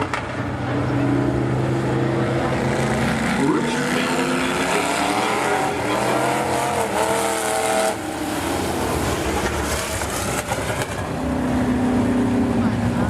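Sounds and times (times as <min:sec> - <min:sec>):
close car engine wavering: 0:00.0 - 0:13.0
race car engines: 0:00.0 - 0:13.0.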